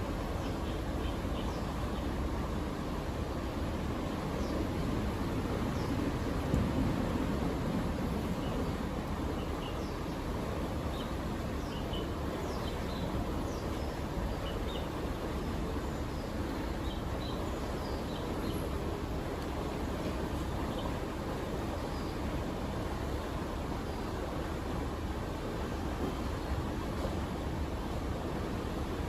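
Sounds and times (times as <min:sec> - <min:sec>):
low rushing background noise: 0:00.0 - 0:29.0
small birds chirping: 0:00.3 - 0:02.2, 0:08.3 - 0:18.9, 0:20.3 - 0:22.4.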